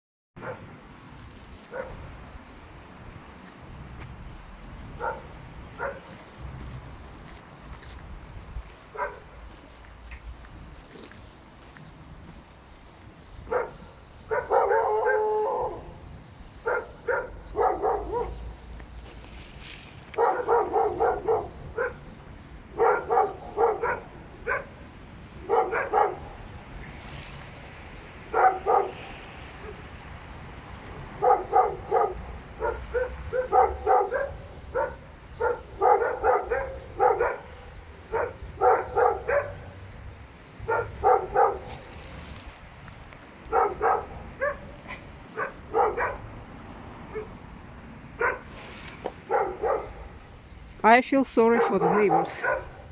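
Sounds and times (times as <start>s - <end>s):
dogs barking: 0.4s - 0.7s, 1.7s - 2.0s, 5.0s - 6.2s, 8.9s - 9.4s, 13.4s - 15.9s, 16.6s - 18.6s, 20.1s - 26.5s, 28.2s - 29.9s, 31.0s - 39.8s, 40.6s - 42.0s, 43.4s - 47.4s, 48.1s - 48.5s, 49.2s - 50.2s, 51.5s - 52.9s.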